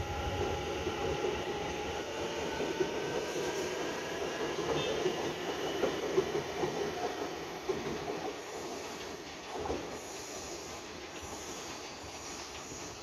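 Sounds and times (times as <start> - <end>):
train wheels clicking over rail joints: 4.4 - 13.0.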